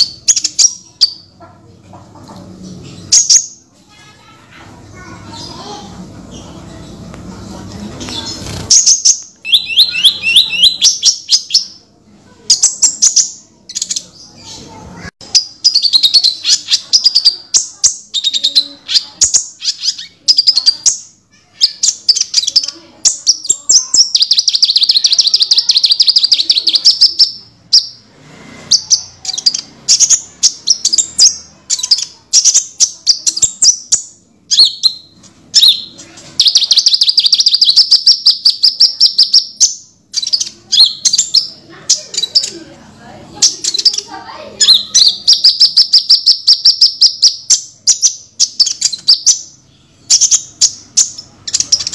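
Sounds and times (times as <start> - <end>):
bird trills: 8.1 - 11.8, 28.7 - 42.6
sunbird chirping song: 8.2 - 11.8, 28.7 - 42.6.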